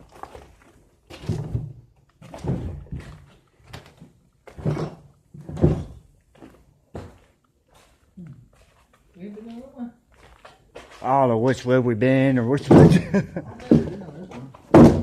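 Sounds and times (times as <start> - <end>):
heavy thuds and scrapes: 1.1 - 6.0, 14.7 - 15.0.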